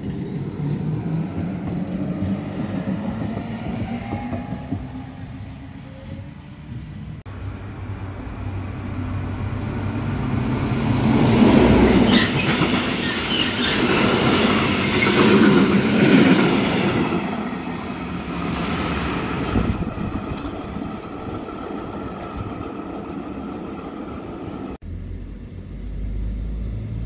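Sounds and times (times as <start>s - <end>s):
train wheels rumbling and clattering: 0.0s - 24.8s
high wheel squeals: 11.7s - 15.3s.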